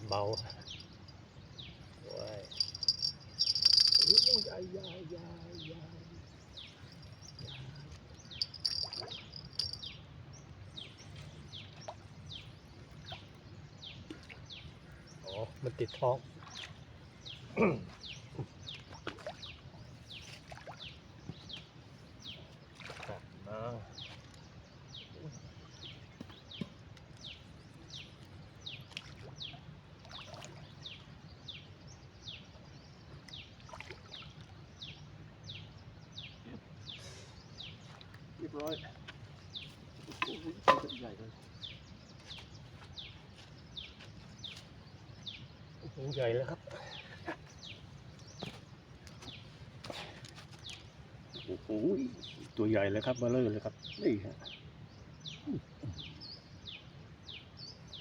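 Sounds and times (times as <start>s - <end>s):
bird chirping: 0.0s - 10.0s.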